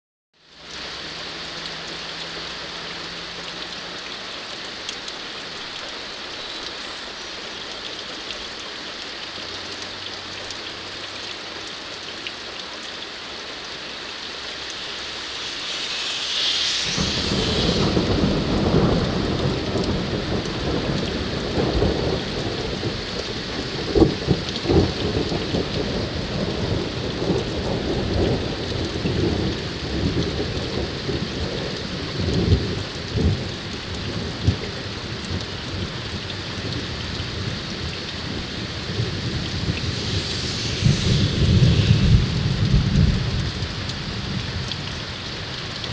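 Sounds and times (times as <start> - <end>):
steady rain: 0.4 - 45.9
rolling thunder: 14.8 - 44.8
sharp thunder cracks: 15.5 - 22.9, 38.2 - 43.8.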